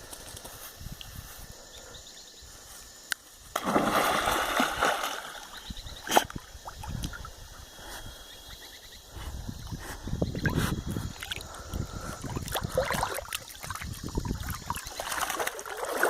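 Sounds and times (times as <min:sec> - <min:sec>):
water splashing and sloshing: 0:03.5 - 0:07.4, 0:10.4 - 0:16.0.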